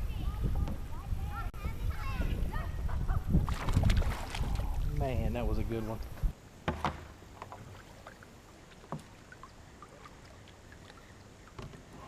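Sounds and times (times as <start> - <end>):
faint background hiss: 0.0 - 12.0
sharp knocks on kayak hull: 6.6 - 7.2.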